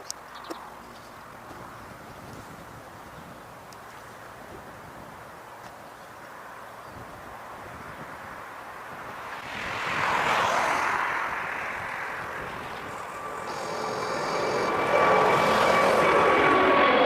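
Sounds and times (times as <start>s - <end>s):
jet engines rushing: 8.8s - 17.0s
high engine whine: 10.7s - 17.0s.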